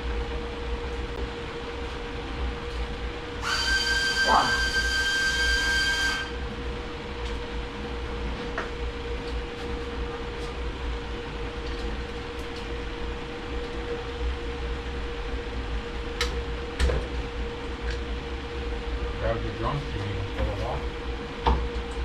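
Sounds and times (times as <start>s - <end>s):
machine hum: 0.0s - 22.0s
high whistling tone: 3.4s - 6.4s.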